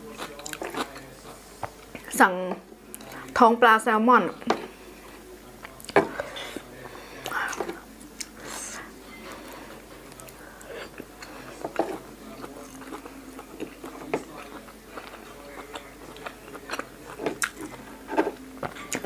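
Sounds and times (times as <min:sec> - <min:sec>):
person chewing crunchy food: 0:00.0 - 0:01.4, 0:10.1 - 0:19.0.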